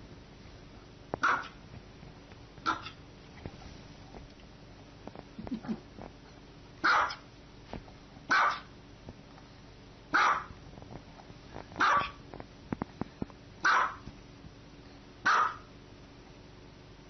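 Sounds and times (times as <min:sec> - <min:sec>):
small dog barking: 0:01.2 - 0:01.6, 0:02.6 - 0:03.0, 0:06.8 - 0:07.3, 0:08.3 - 0:08.7, 0:10.1 - 0:10.6, 0:11.8 - 0:12.2, 0:13.6 - 0:14.0, 0:15.2 - 0:15.7.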